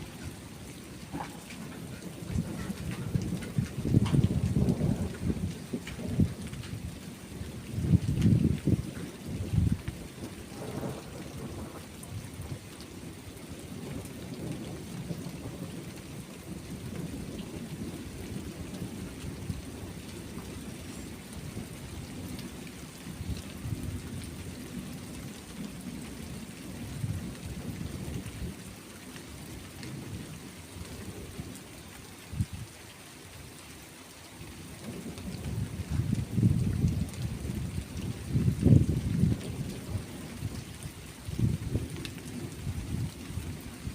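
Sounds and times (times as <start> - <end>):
steady rain: 0.0 - 43.9
rolling thunder: 1.0 - 12.6, 34.8 - 40.7, 41.3 - 43.9.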